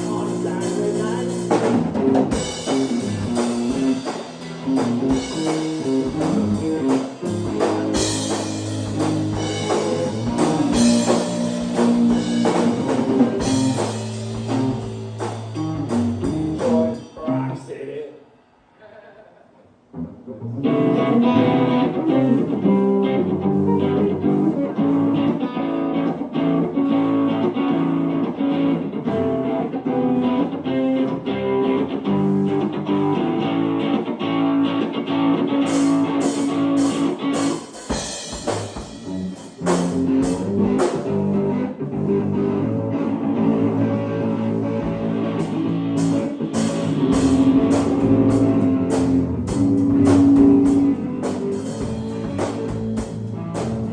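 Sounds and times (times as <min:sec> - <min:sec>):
electric guitar: 0:00.0 - 0:17.6, 0:19.8 - 0:53.9
drum kit: 0:00.0 - 0:17.8, 0:34.7 - 0:53.9
bass guitar: 0:00.0 - 0:17.9, 0:19.8 - 0:53.9.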